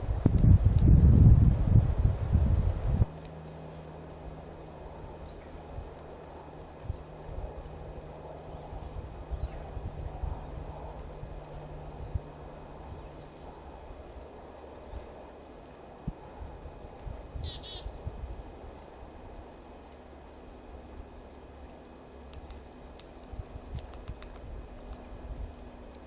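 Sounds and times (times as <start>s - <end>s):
small birds chirping: 0.0s - 19.0s, 20.0s - 26.0s
low background rumble: 0.0s - 26.0s.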